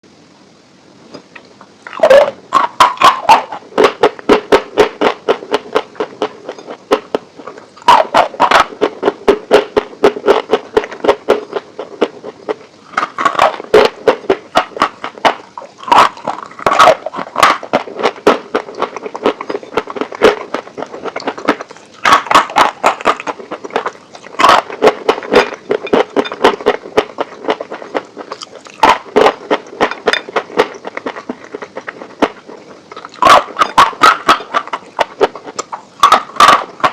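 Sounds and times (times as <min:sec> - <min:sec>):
crunchy chewing of chicken wings: 0:01.9 - 0:36.9.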